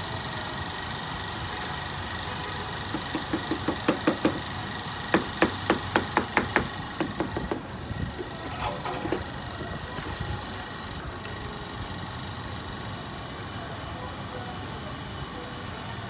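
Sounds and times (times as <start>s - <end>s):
rapid hammer taps: 2.9s - 4.5s.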